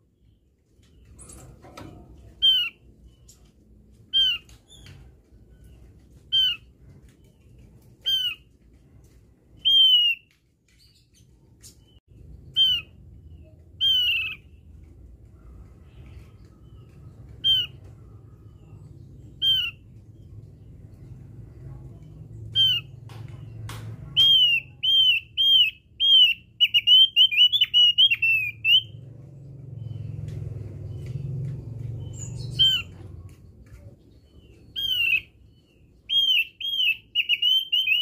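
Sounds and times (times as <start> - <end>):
faint low rumble: 10.6 - 24.9, 28.5 - 36.1
bird calling downward-slurred notes: 24.2 - 29.1, 34.3 - 38.0.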